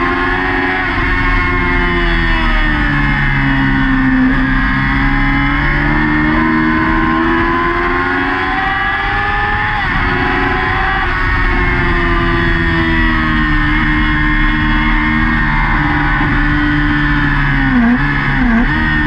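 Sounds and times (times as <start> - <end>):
motorcycle engine at high revs: 0.0 - 19.0
wind rush: 6.6 - 19.0.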